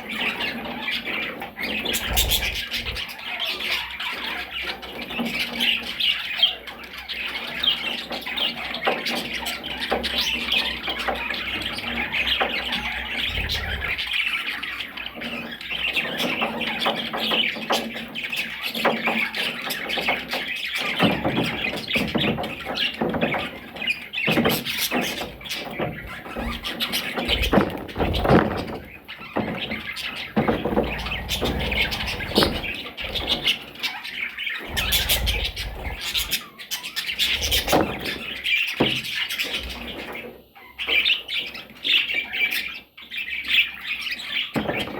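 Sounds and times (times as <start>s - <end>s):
parrots chattering and squawking: 1.7s - 4.0s, 10.0s - 14.5s, 30.4s - 33.7s, 34.6s - 38.6s.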